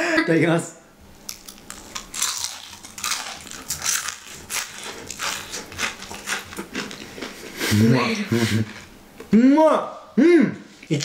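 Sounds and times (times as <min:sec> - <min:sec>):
crunchy chewing of fried fish: 0:01.2 - 0:07.5.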